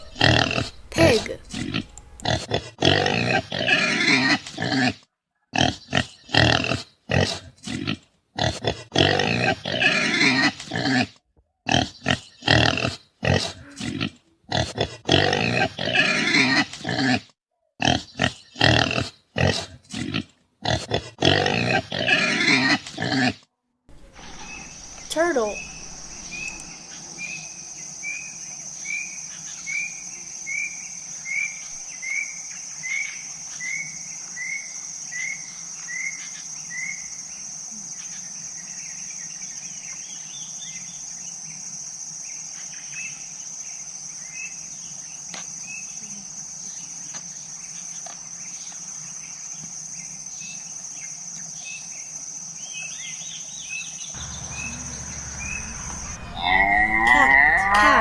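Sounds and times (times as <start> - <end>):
insects trilling: 0.0 - 2.4, 23.9 - 31.5, 54.2 - 58.0
scattered chirps: 23.9 - 26.7, 54.2 - 58.0
animal short rising calls: 54.2 - 58.0.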